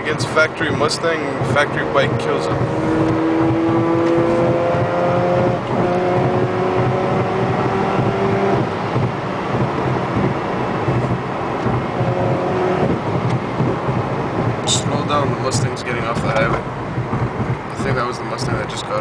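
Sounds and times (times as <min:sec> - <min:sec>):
car engine accelerating: 0:00.0 - 0:19.0
road and wind noise: 0:00.0 - 0:19.0.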